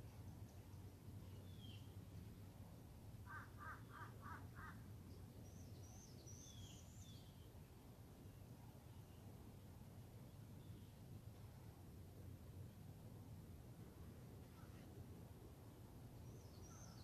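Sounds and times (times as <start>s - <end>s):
faint crow cawing: 3.2s - 4.8s.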